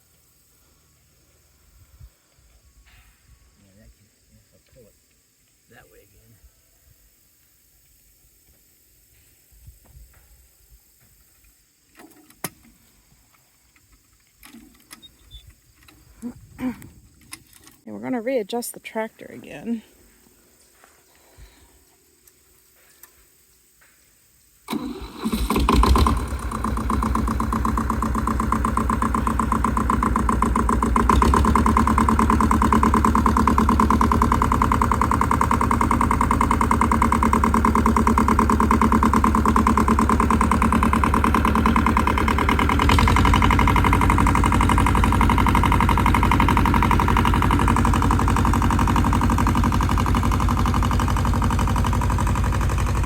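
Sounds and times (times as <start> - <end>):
tractor engine starting and running: 24.7 - 53.0.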